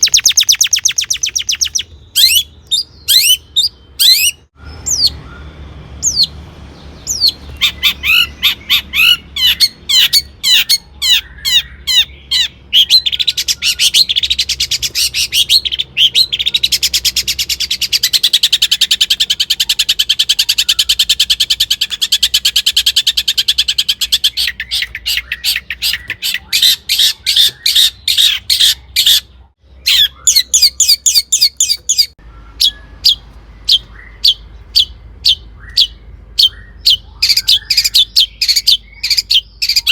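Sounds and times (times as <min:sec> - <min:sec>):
fast rattling bird trill: 0:00.0 - 0:39.9
shrike singing: 0:00.0 - 0:39.9.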